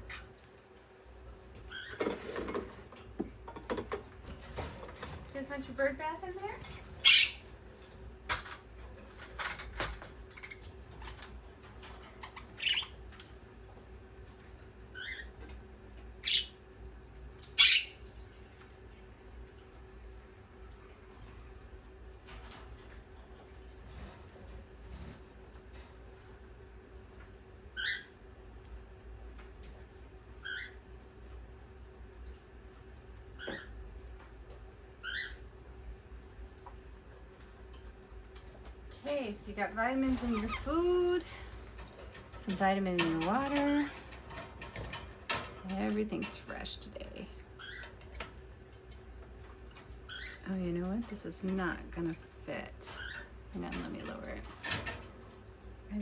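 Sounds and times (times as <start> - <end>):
faint steady hum: 0.0 - 56.0
parakeets calling: 5.6 - 7.6, 12.1 - 13.1, 16.2 - 16.6, 17.4 - 18.1, 27.8 - 28.2, 30.4 - 30.8, 35.0 - 35.4, 39.8 - 41.5, 49.9 - 50.5
parakeet chirps: 7.0 - 7.5, 12.2 - 13.0, 16.2 - 16.6, 17.5 - 18.1.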